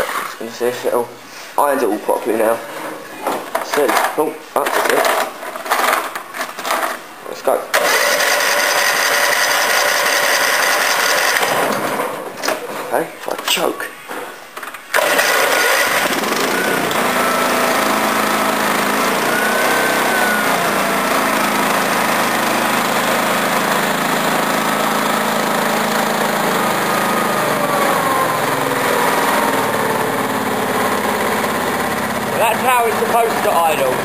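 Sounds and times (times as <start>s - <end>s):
mower engine starting and idling: 7.7s - 12.2s, 14.9s - 34.0s.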